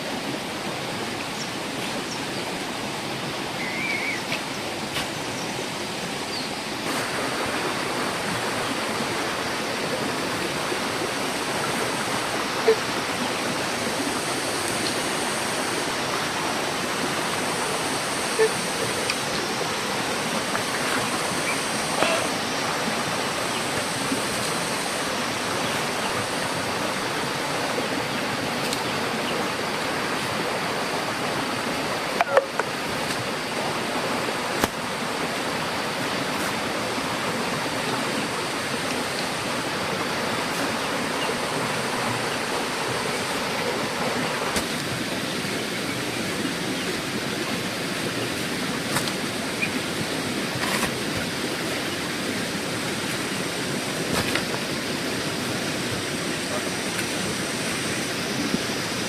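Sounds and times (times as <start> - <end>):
steady rushing noise: 0.0 - 45.2.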